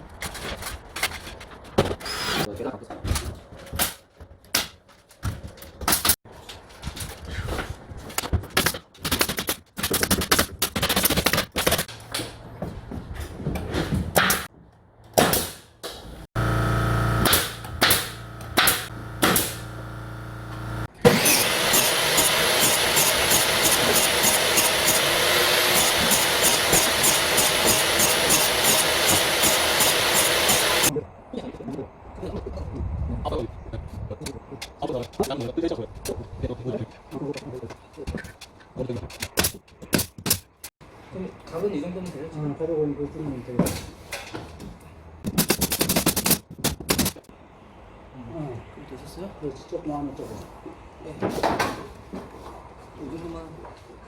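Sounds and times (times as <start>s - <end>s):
pneumatic nail gun firing: 15.2s - 30.9s
power tool running: 16.1s - 30.9s.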